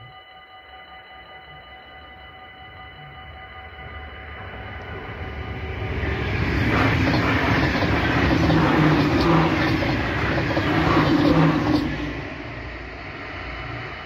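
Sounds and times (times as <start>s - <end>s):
train passing at speed: 3.3s - 14.0s
wheels clattering over rails: 6.5s - 12.3s.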